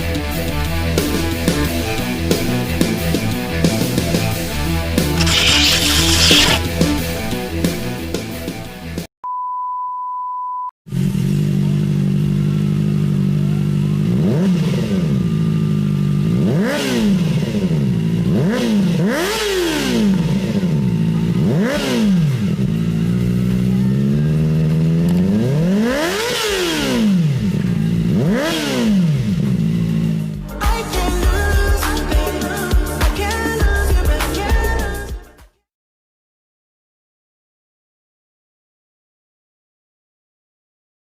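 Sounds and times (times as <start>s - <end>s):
motorcycle engine idling and revving: 10.9s - 34.1s.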